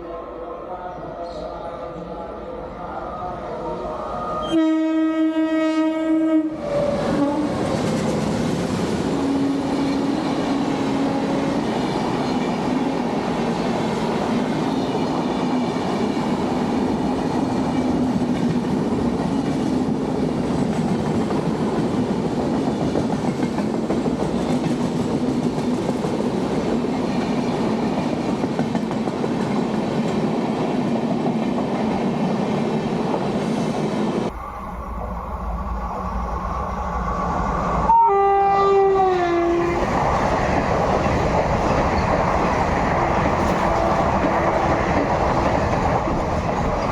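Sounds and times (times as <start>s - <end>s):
train coaches rumbling past: 0.0s - 46.9s
train horn: 4.0s - 7.7s, 9.2s - 11.6s, 37.8s - 39.8s
wheels clicking over rail joints: 39.5s - 46.9s.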